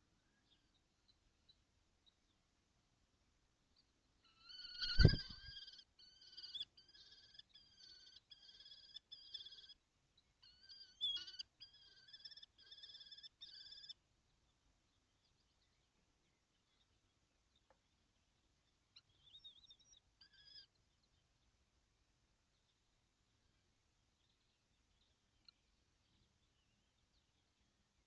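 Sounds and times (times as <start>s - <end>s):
kestrels calling: 4.2s - 9.8s, 10.4s - 14.0s, 18.6s - 21.2s.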